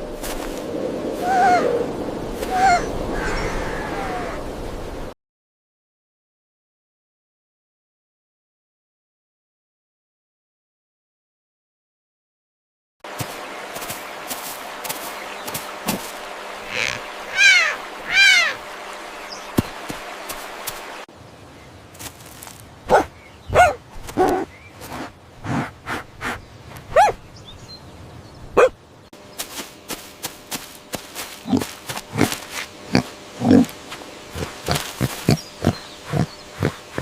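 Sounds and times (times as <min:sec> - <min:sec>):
short animal calls: 0:16.6 - 0:18.6.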